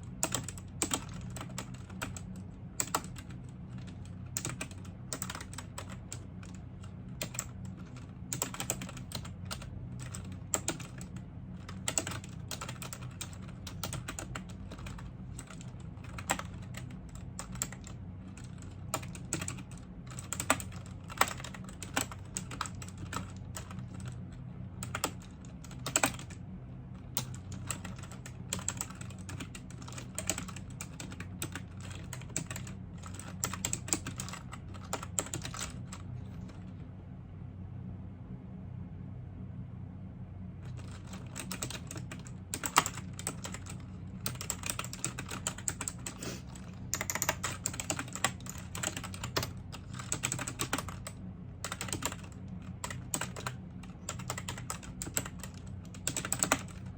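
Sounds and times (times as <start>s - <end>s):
low steady hum: 0.0s - 56.9s.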